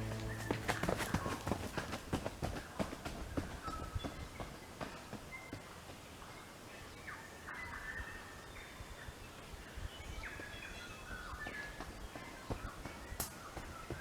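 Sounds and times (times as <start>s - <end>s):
forest birds calling: 0.0s - 1.4s.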